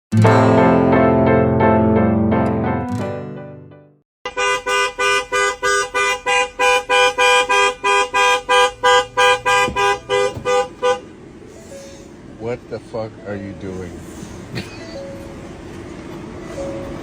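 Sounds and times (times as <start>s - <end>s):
music: 0.1s - 4.0s
two-tone horn honking: 4.2s - 12.2s.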